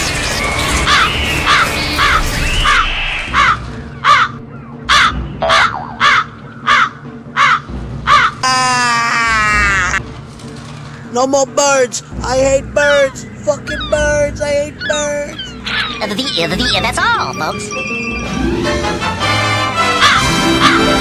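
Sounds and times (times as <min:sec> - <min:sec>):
crows cawing: 0:00.9 - 0:10.0, 0:12.9 - 0:17.0, 0:19.8 - 0:21.0.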